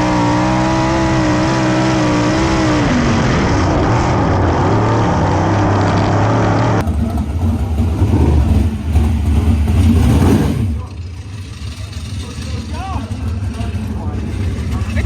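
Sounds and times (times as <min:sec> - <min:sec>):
heavy rushing noise: 0:00.0 - 0:15.0
race car engine running hard: 0:00.0 - 0:15.0.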